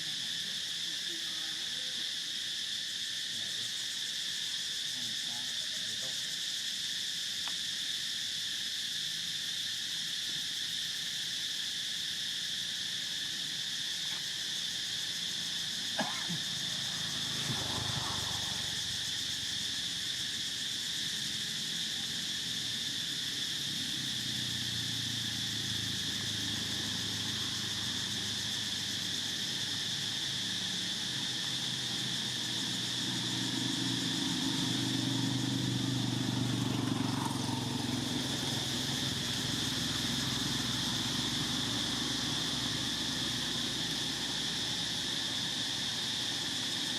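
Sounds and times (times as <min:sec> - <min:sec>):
insect chorus drone: 0:00.0 - 0:46.9.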